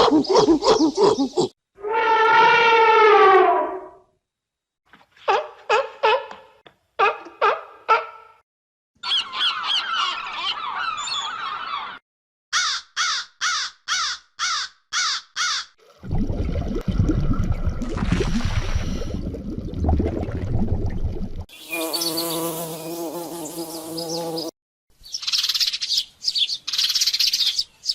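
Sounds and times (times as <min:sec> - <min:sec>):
harsh caws: 0:12.5 - 0:15.8.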